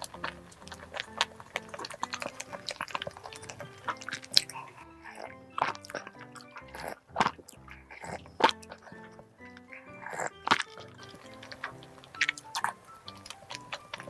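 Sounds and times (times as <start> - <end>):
squishy bites and chewing: 0.0 - 4.8
background music: 0.0 - 14.0
sharp eating smacks: 0.0 - 14.0.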